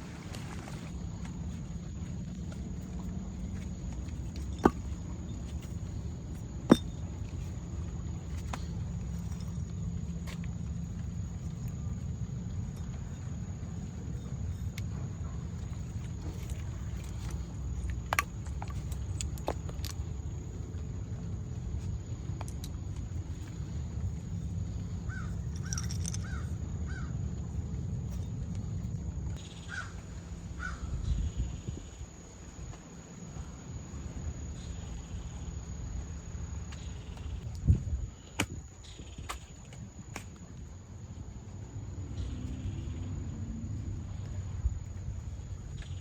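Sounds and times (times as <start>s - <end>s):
steady low rumble: 0.0s - 46.0s
bird calling: 29.4s - 31.2s.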